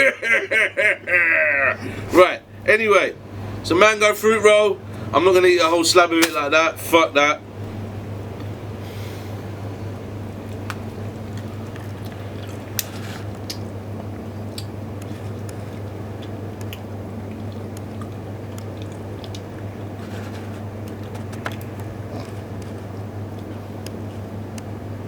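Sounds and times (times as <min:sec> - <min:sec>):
steady low hum: 0:00.0 - 0:25.0
person chewing: 0:10.4 - 0:24.3.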